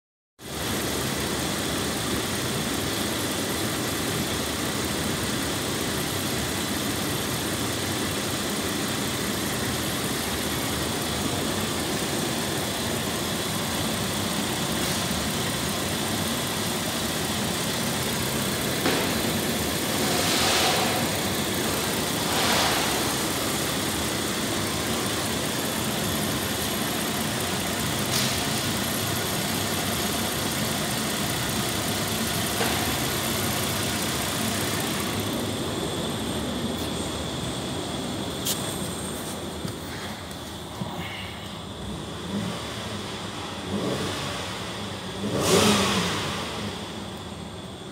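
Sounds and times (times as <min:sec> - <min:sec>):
car engine idling: 0:00.4 - 0:47.9.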